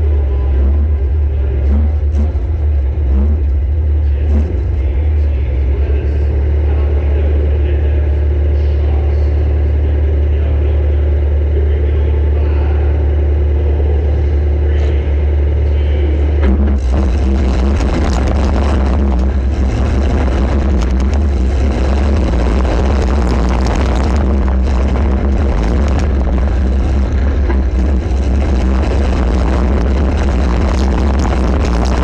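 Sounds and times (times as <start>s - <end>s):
car engine rumbling: 0.0s - 32.0s.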